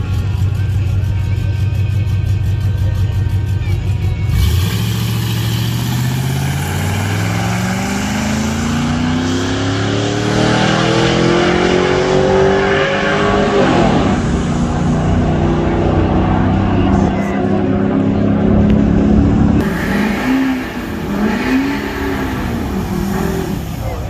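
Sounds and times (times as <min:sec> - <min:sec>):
truck engine accelerating hard: 0:00.0 - 0:24.0.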